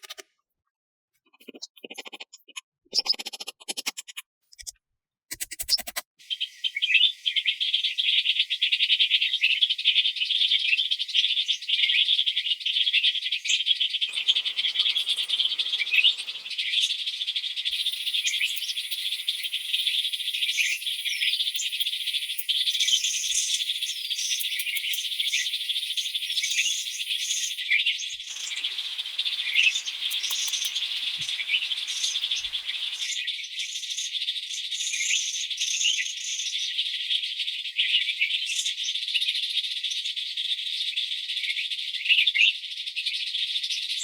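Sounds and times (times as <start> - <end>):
chorus of chirping night insects: 14.1 - 33.2.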